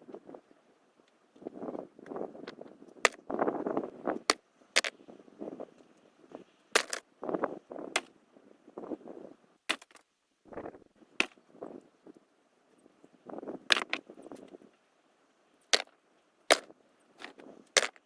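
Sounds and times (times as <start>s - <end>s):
rustling and scraping: 16.5s - 18.0s.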